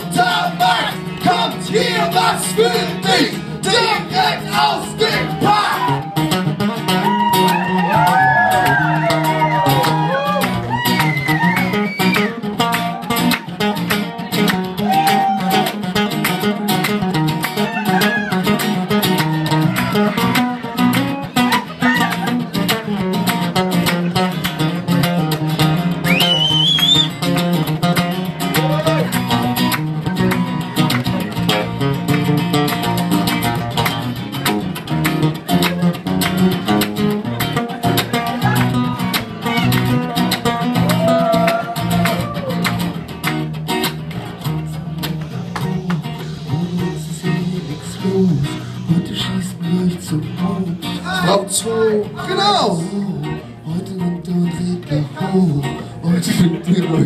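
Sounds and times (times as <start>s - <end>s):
voices shouting or singing: 0.0s - 13.5s, 14.8s - 15.8s, 17.6s - 18.6s, 37.7s - 42.7s
acoustic guitar strumming: 0.0s - 57.0s.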